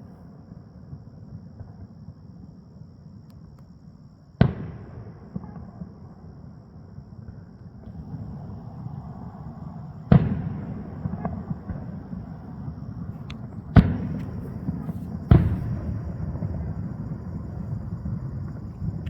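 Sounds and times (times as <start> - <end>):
faint firework cracks: 7.9 - 19.0
fireworks booming: 7.9 - 19.0.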